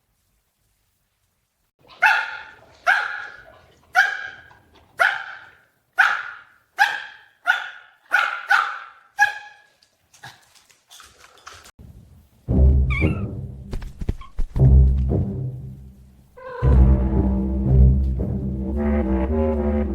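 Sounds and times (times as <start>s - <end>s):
dog barking: 1.8s - 9.8s.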